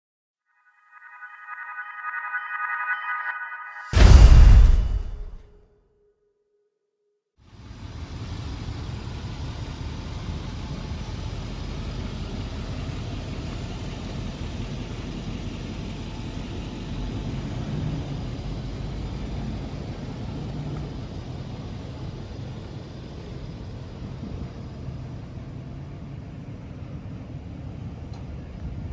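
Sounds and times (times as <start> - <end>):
diesel truck engine running: 7.5 - 28.9.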